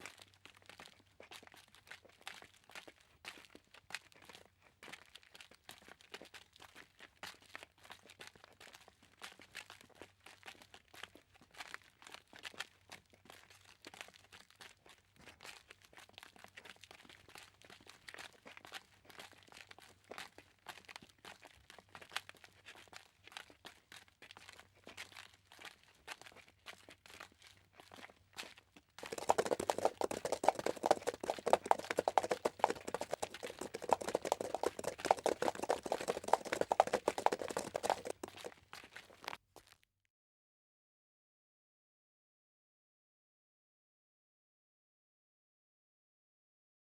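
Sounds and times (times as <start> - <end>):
footsteps crunching: 29.0 - 38.5.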